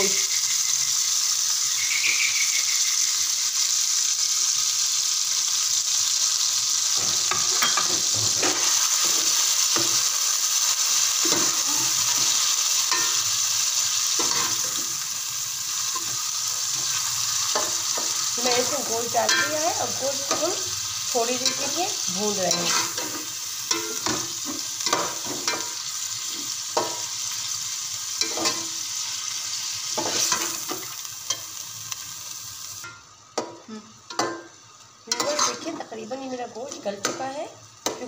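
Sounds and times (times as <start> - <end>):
chicken sizzling in oil: 0.0 - 38.0
metal spoon scraping pot: 22.5 - 24.2, 35.1 - 35.7.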